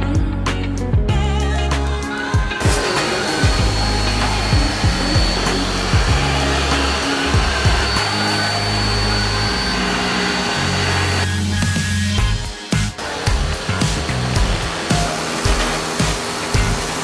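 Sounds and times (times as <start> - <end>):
music with bass and beat: 0.0 - 17.0
pressure washer spraying: 2.6 - 11.6, 12.8 - 17.0.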